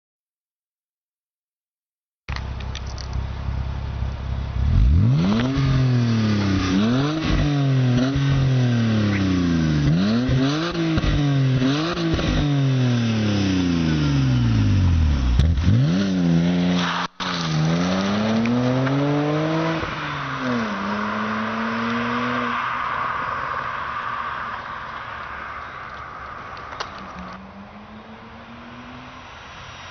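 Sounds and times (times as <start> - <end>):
car engine idling and revving: 2.3 - 29.9.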